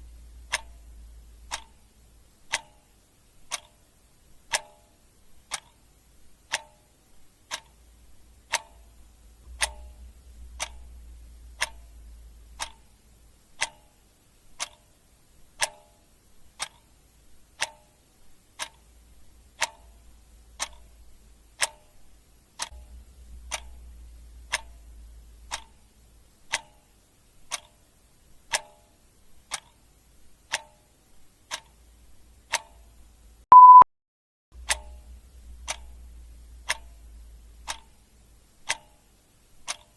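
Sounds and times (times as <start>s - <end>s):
clock ticking: 0.0s - 33.8s, 34.6s - 39.9s
short high beep: 33.5s - 33.9s.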